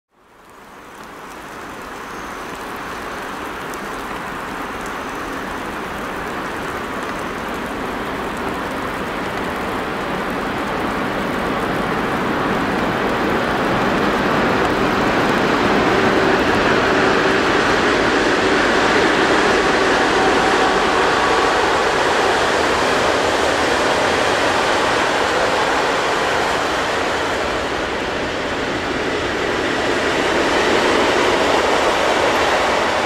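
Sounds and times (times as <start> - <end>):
freight train rushing noise: 2.7 - 33.0.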